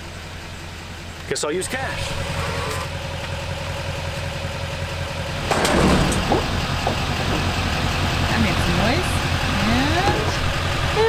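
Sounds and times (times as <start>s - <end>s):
dispenser mechanical running noise: 5.1s - 11.0s.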